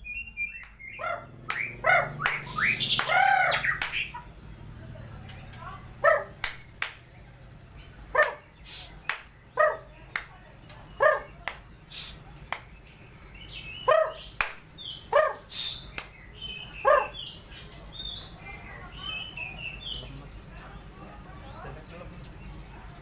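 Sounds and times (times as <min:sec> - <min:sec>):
songbird chirps and whistles: 0:00.0 - 0:04.3, 0:07.6 - 0:20.3
dog barking: 0:01.0 - 0:02.2, 0:06.0 - 0:06.4, 0:08.1 - 0:08.5, 0:09.6 - 0:09.9, 0:11.0 - 0:11.4, 0:13.8 - 0:14.3, 0:15.1 - 0:15.4, 0:16.8 - 0:17.2.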